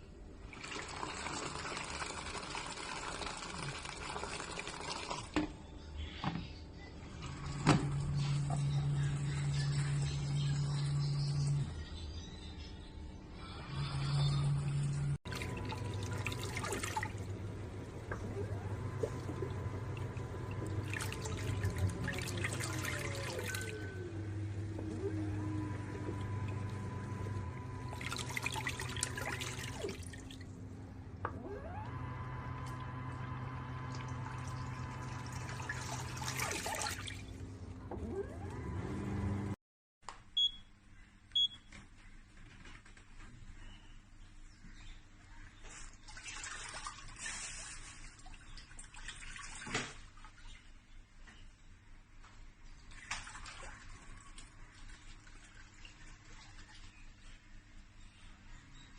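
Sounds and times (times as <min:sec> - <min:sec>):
washing machine motor hum: 0:00.0 - 0:12.3, 0:13.4 - 0:39.6
motor whine: 0:07.2 - 0:11.8, 0:13.6 - 0:36.5, 0:37.2 - 0:39.6
water splashing and sloshing: 0:15.2 - 0:31.0, 0:31.6 - 0:38.6, 0:45.5 - 0:50.9, 0:52.3 - 0:57.5.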